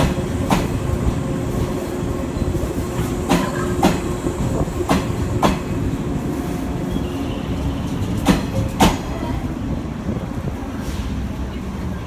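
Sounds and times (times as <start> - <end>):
train wheels clacking over joints: 0.0 - 5.9, 7.9 - 9.2
electric train humming: 0.0 - 10.3.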